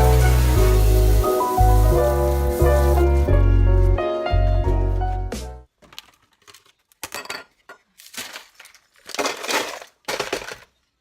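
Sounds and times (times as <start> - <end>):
small hard objects clinking: 6.3 - 10.9.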